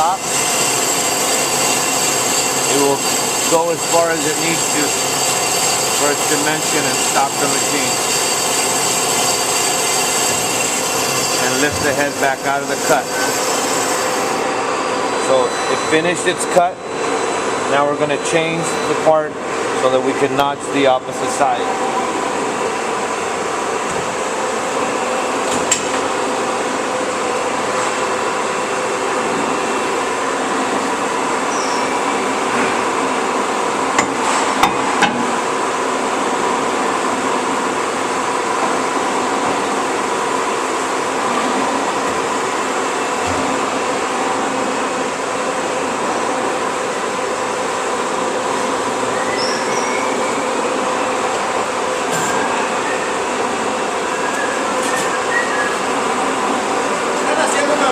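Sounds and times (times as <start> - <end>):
band saw humming: 0.0 - 14.6.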